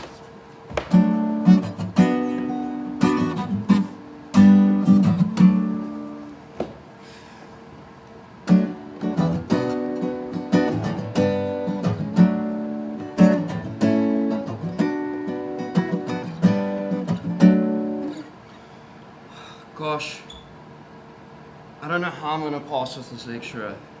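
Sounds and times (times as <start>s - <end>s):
acoustic guitar strumming and picking: 0.0s - 6.5s, 8.3s - 18.7s.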